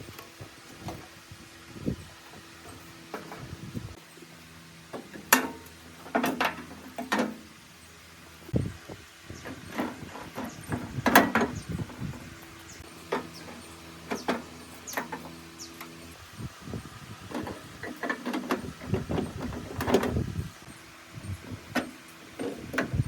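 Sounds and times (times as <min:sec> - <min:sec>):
sharp knocks and clatter: 0:04.9 - 0:07.4.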